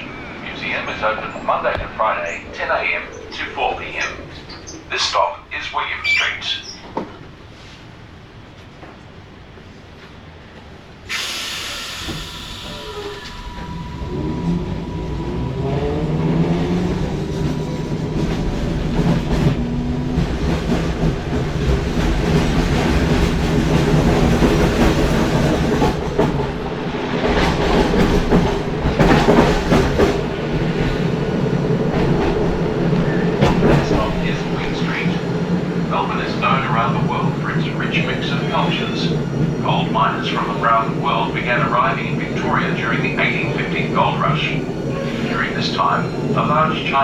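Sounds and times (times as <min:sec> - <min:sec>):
tram motors whining: 0:00.0 - 0:47.0
wheels clattering on rails: 0:00.0 - 0:47.0
air hiss: 0:11.0 - 0:14.2.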